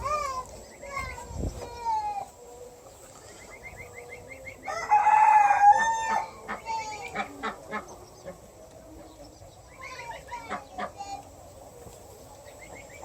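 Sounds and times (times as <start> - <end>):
small birds chirping: 0.0 - 5.1, 5.9 - 13.0
rooster crowing: 4.6 - 6.4.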